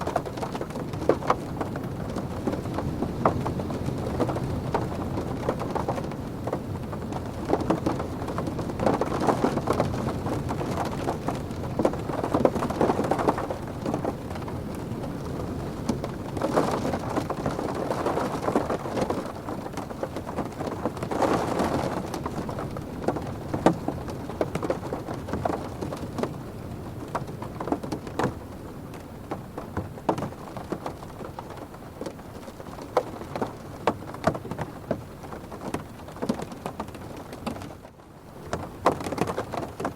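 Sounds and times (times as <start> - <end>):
wind gusts: 0.0 - 37.5
rain on car roof and windows: 0.0 - 39.9.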